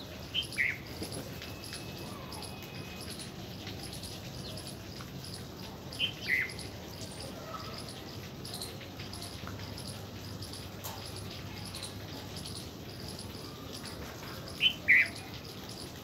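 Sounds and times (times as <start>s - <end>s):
high bird chirps: 0.0s - 6.8s
faint rapid high ticking: 0.0s - 16.0s.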